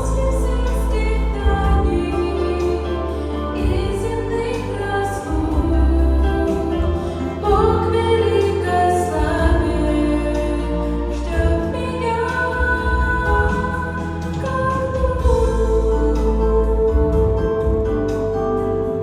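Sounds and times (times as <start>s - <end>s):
female vocal trio singing: 0.0s - 17.9s
instrumental accompaniment: 0.0s - 19.0s.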